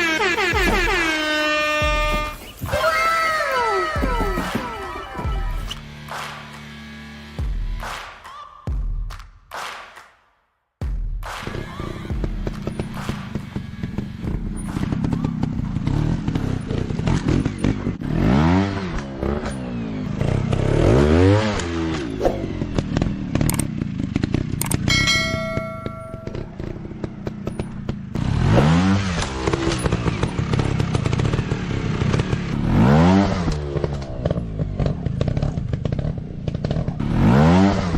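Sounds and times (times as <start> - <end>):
motocross engines revving: 0.0 - 6.2, 11.4 - 37.9
short bell-like ring: 24.9 - 26.6.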